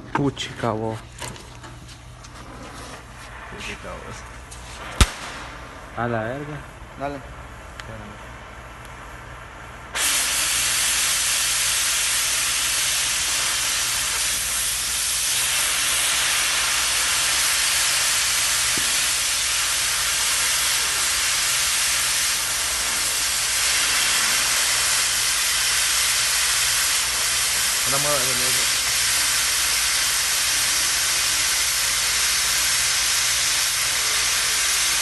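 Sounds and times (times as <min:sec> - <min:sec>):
cutting torch hissing: 0:09.9 - 0:35.0.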